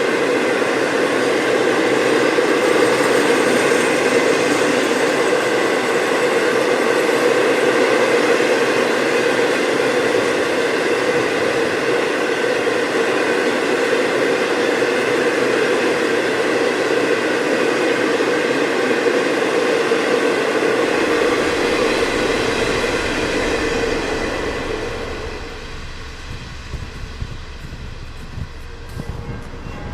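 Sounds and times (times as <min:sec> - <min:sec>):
freight train cars rolling past: 0:20.2 - 0:29.9.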